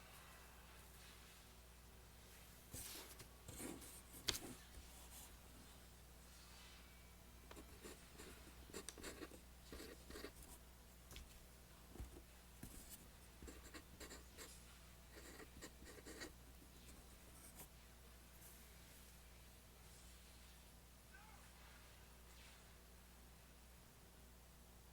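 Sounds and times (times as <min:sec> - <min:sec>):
pencil scratching on paper: 0:02.8 - 0:05.2, 0:07.6 - 0:10.5, 0:12.0 - 0:17.7.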